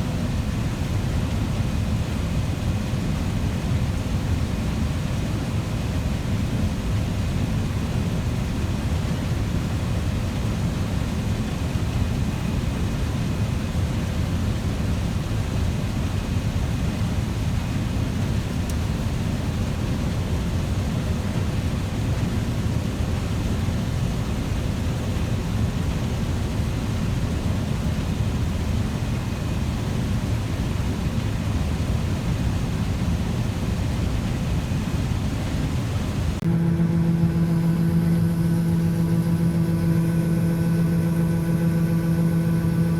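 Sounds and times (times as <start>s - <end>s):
farm machinery engine running: 36.1s - 42.9s.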